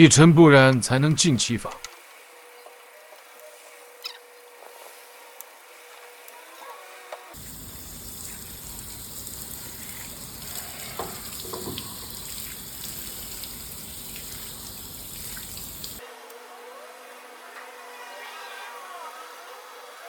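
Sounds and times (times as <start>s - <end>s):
water jet spraying car: 7.4s - 16.0s.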